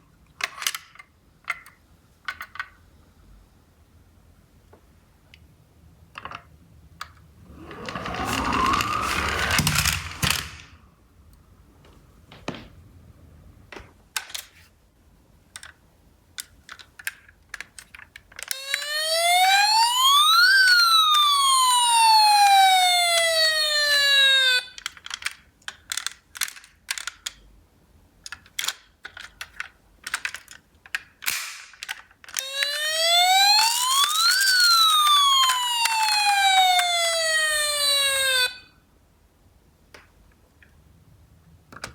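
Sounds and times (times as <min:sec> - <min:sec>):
plastic toy cars clicking: 0:00.1 - 0:02.8, 0:06.1 - 0:10.8, 0:15.5 - 0:18.9, 0:22.4 - 0:27.5, 0:28.2 - 0:32.8, 0:33.6 - 0:37.2
rising whir: 0:07.2 - 0:10.8, 0:18.6 - 0:24.7, 0:32.4 - 0:38.6
toy siren wailing: 0:07.5 - 0:10.4, 0:18.5 - 0:24.8, 0:32.4 - 0:38.7.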